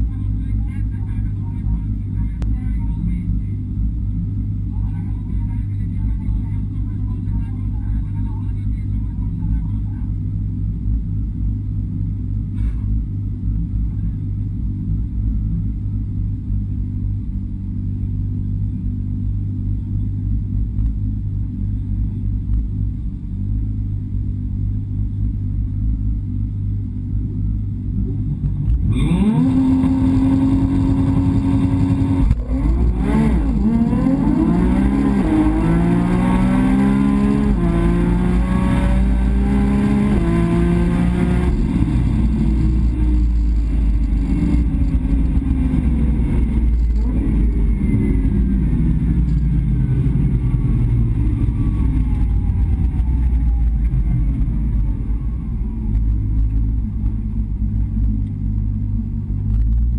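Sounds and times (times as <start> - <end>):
car engine revving and accelerating: 27.9 - 59.9.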